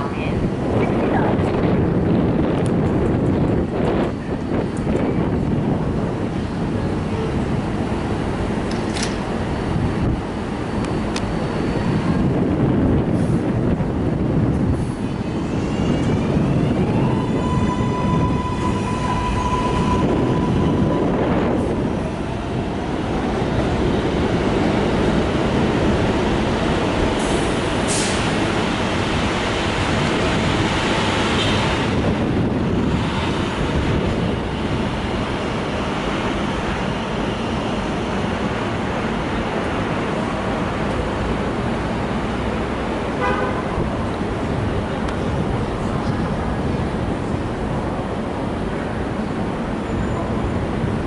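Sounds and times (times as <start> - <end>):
train rumbling past: 0.0 - 51.0
train horn: 17.1 - 21.4, 43.2 - 43.9.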